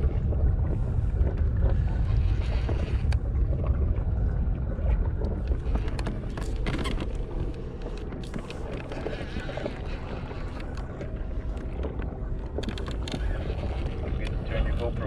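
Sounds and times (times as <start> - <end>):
water against hull: 0.0 - 15.0
wind buffeting microphone: 0.0 - 15.0
small knocks against hull: 5.0 - 14.5.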